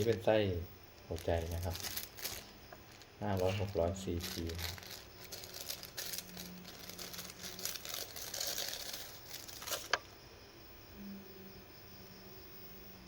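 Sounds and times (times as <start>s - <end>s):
packaging crinkling: 0.0s - 10.1s.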